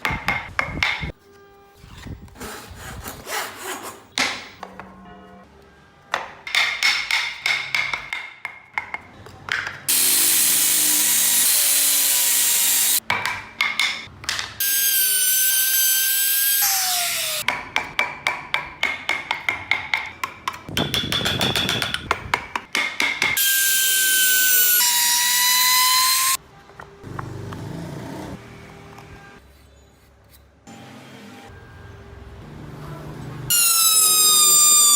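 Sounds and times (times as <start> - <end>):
electric rotary tool whining: 9.9 - 13.0.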